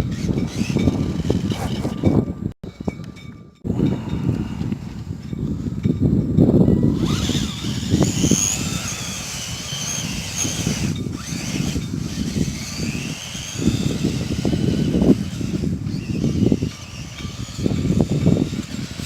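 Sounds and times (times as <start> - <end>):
electric motor and gears whining: 0.0 - 2.5, 6.7 - 19.0
wind rumbling on microphone: 0.0 - 19.0.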